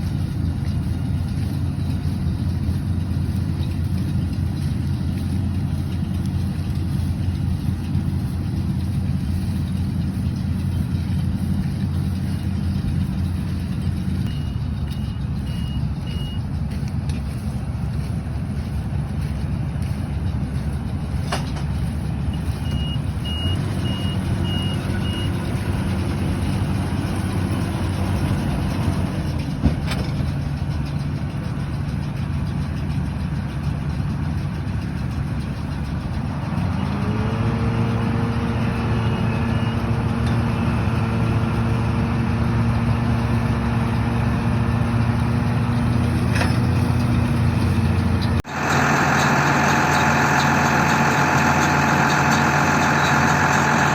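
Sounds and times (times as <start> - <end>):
tractor diesel engine running: 0.0 - 53.9
high beeps: 14.2 - 16.5.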